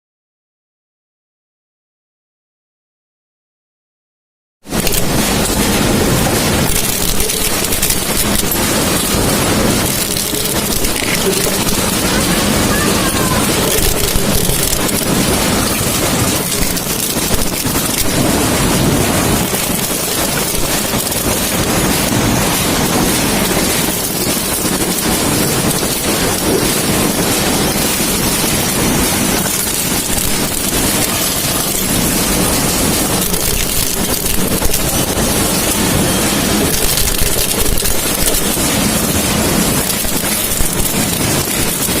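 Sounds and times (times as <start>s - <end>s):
machine clattering: 4.7s - 42.0s
small clicks: 6.7s - 12.8s, 33.2s - 35.1s, 36.7s - 38.7s.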